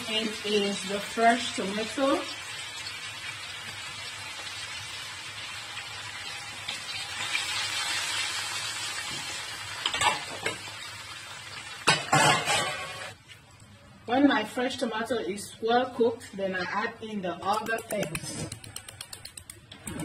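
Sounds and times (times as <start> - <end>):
hot oil sizzling in wok: 0.0 - 13.2.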